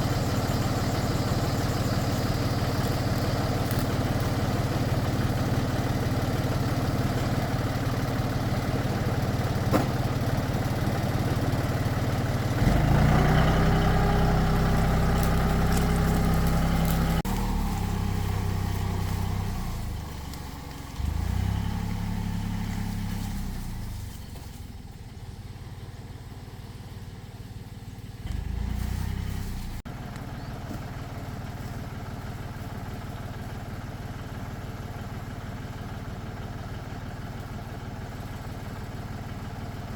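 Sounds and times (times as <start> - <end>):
tractor engine revving: 0.0 - 39.8.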